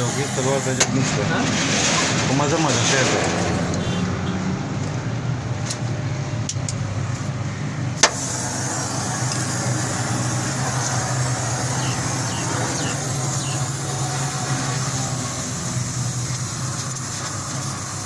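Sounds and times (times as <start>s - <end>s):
car engine idling: 3.8s - 16.6s.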